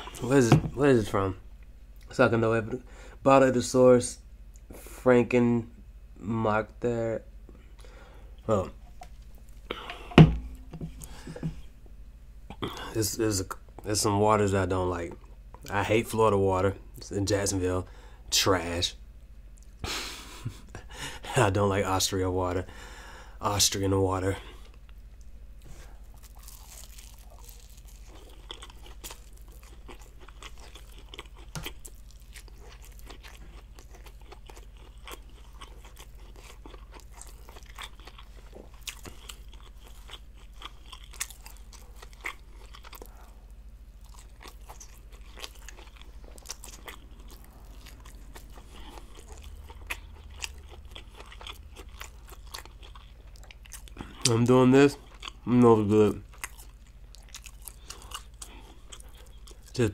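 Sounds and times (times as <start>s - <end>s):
person chewing food: 7.8s - 11.7s, 24.5s - 55.5s, 56.2s - 59.9s.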